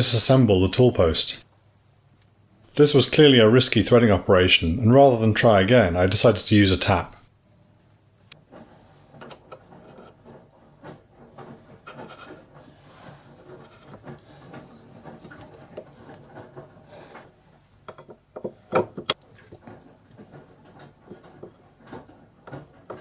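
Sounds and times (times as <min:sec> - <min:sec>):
tools handled with rubbing and knocks: 0:08.3 - 0:23.0.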